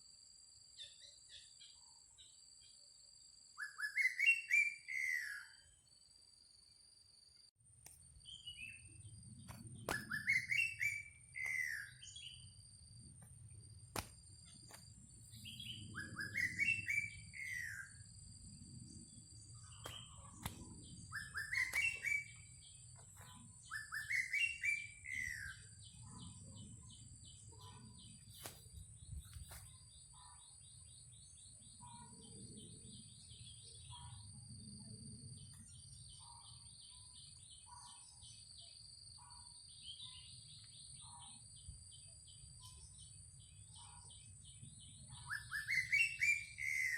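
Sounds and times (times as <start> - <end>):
bird singing whistled notes: 3.5 - 5.8, 8.2 - 12.7, 15.2 - 18.2, 18.8 - 34.2, 42.3 - 46.9.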